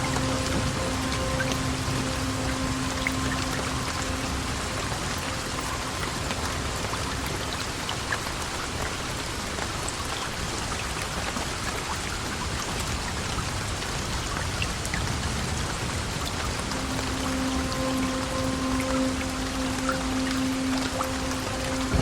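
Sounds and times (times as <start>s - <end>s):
faint ticks of raindrops: 0.0s - 22.0s
heavy rain hissing: 15.1s - 22.0s.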